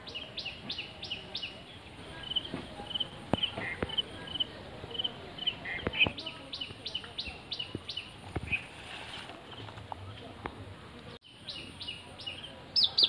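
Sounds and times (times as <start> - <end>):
bird calling: 0.0 - 8.8.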